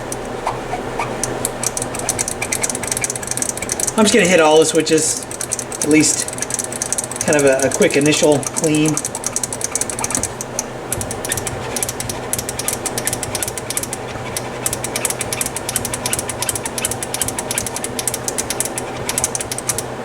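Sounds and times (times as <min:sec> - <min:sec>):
switches clicking: 0:00.0 - 0:20.0.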